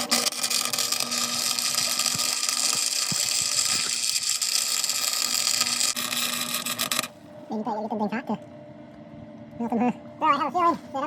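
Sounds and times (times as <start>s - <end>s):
arc welding sizzle: 0.0s - 7.2s.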